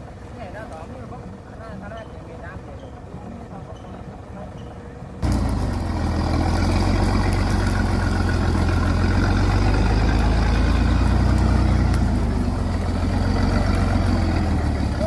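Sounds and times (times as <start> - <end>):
truck engine running: 5.0 - 15.0.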